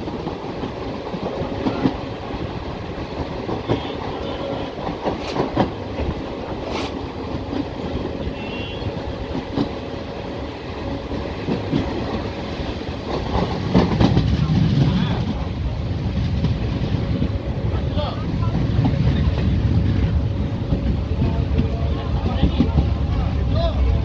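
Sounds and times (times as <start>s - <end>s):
wheels clicking over rail joints: 0.0s - 8.2s
train wheels rumbling: 0.0s - 24.0s.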